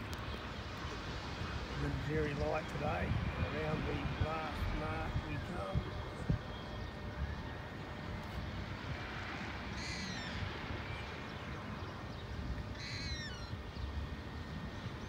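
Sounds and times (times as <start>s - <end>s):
low outdoor rumble: 0.0s - 15.0s
bird harsh calls: 9.7s - 14.0s.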